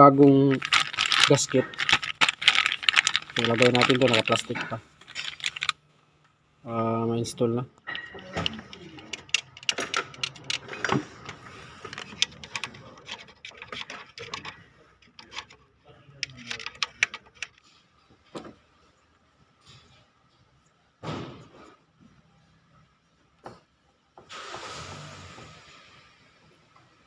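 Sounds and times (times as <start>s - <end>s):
plastic rustling: 0.1s - 5.8s, 8.3s - 15.6s, 16.2s - 17.6s.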